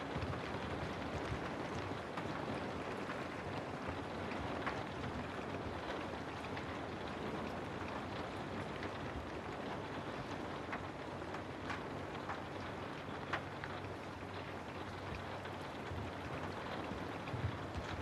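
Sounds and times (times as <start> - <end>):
raindrop ticks: 0.0 - 18.0.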